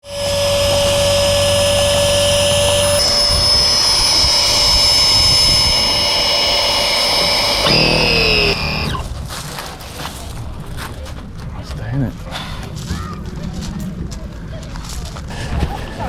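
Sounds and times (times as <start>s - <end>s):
electric pump running: 0.0s - 9.1s.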